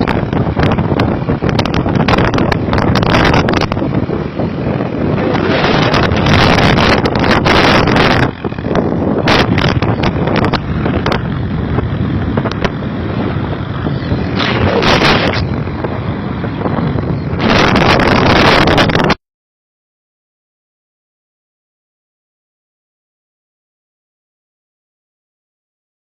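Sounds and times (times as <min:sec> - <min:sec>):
wind buffeting microphone: 0:00.0 - 0:19.2.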